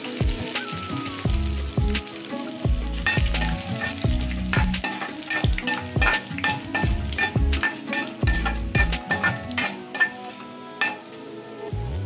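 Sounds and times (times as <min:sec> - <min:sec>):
spices sizzling in hot oil: 0:00.0 - 0:11.8
spatula knocking and scraping pan: 0:03.1 - 0:11.0.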